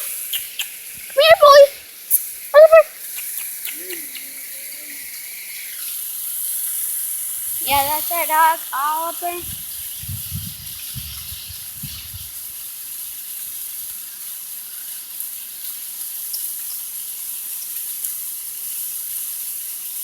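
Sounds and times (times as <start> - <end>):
waterfall rushing: 7.6 - 9.4.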